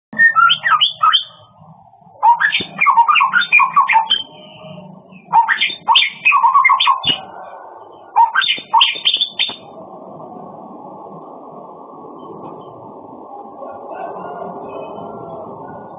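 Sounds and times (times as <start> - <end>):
songbird singing whistled notes: 0.2 - 1.5, 2.2 - 7.4, 8.0 - 9.7
low rushing noise: 1.2 - 15.9.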